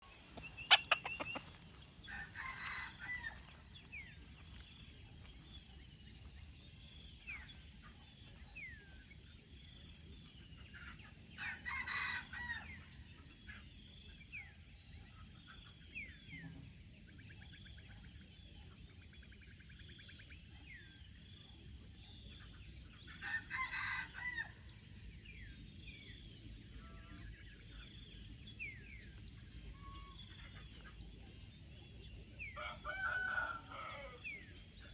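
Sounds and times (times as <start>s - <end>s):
small birds chirping: 0.0s - 11.2s
rooster crowing: 2.1s - 3.5s, 32.6s - 34.4s.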